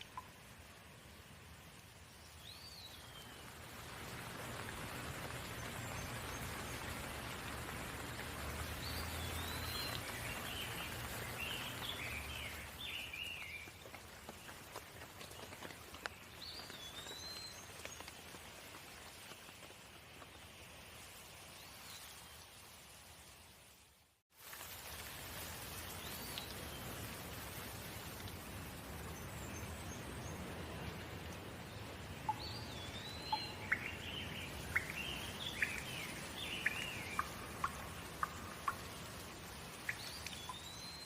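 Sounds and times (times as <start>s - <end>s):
steady rain falling: 0.0s - 41.0s
bird chirping: 32.3s - 39.0s.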